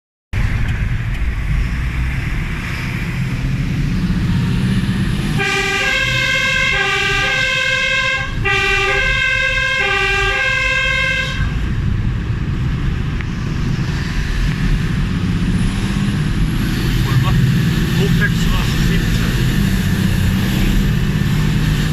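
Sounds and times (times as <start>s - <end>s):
fire engine rumbling: 0.3s - 21.9s
two-tone horn: 5.3s - 11.6s.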